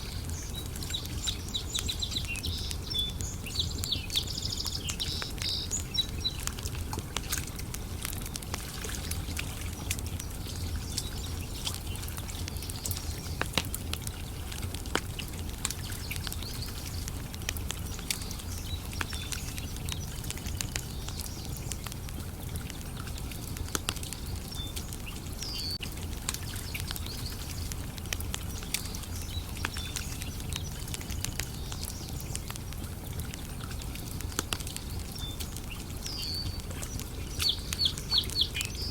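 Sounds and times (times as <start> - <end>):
bird chirping: 0.0 - 6.6, 28.4 - 38.9
campfire crackling and popping: 0.0 - 38.9.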